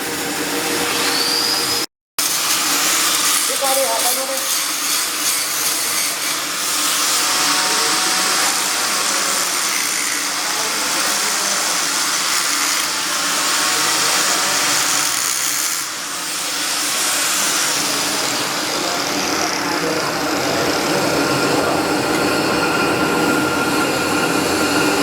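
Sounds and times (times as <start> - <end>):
crackling welding arc hiss: 2.2 - 19.8.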